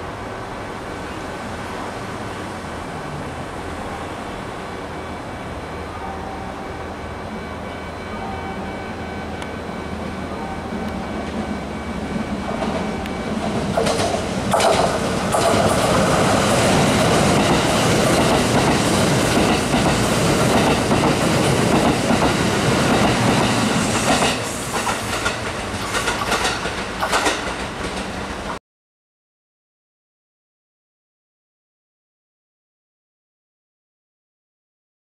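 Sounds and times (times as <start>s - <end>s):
train wheels rumbling on rail: 9.3s - 28.6s
wheels clicking over rail joints: 17.0s - 28.5s.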